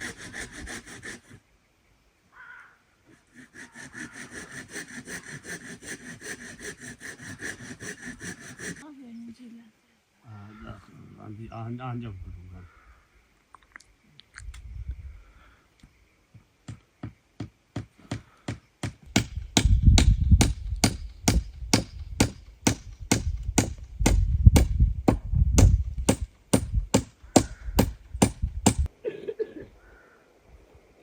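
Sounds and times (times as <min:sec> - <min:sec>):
sharp chopping strikes: 0:18.8 - 0:28.9.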